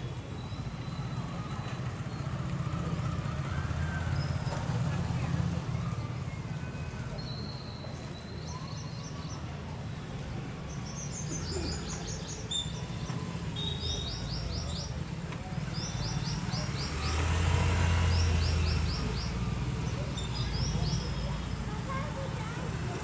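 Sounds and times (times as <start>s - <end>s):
small birds chirping: 10.6s - 23.0s.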